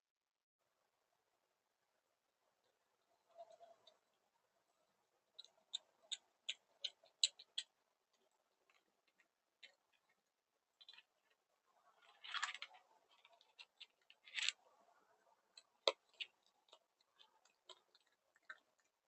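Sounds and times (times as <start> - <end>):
animals crunching food: 10.8 - 19.0.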